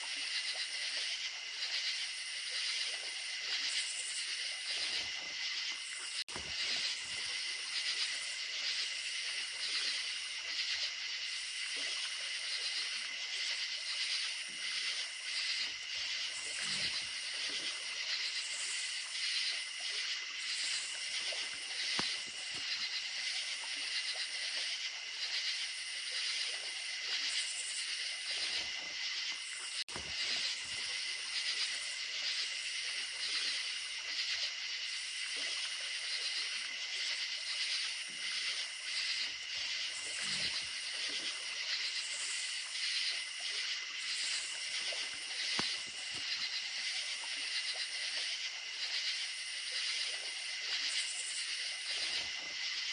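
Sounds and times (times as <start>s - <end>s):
creek water running: 0.0s - 52.9s
crickets trilling: 0.0s - 52.9s
click: 21.9s - 22.7s, 45.5s - 46.3s.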